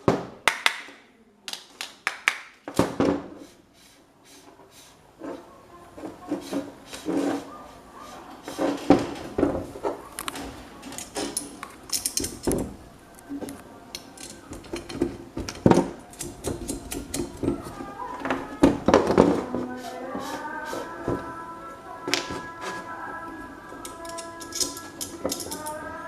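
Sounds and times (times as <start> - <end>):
metal parts clinking: 10.2 - 12.6, 13.9 - 17.2, 23.8 - 25.8.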